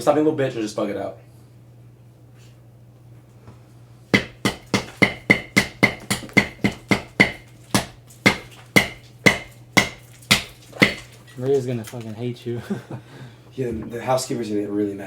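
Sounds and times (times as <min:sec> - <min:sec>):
hammer blows ringing: 0:04.2 - 0:11.1.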